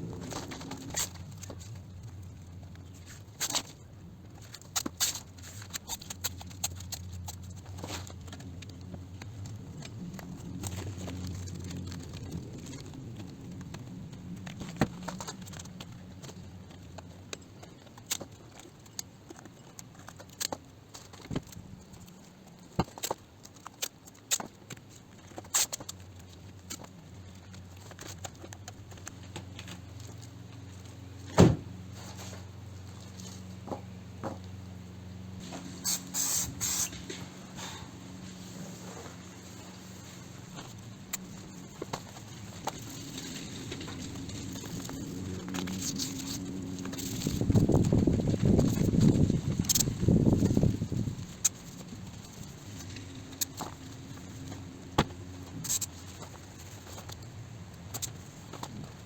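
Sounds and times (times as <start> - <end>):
steady low hum: 0.0 - 19.6, 26.1 - 59.0
masking tape tearing: 35.5 - 37.2.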